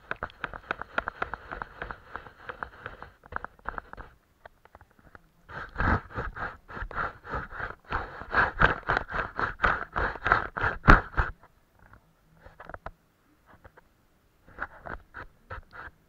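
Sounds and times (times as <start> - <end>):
paintbrush scratching on paper: 0.0 - 4.2, 5.5 - 11.4, 14.5 - 16.0.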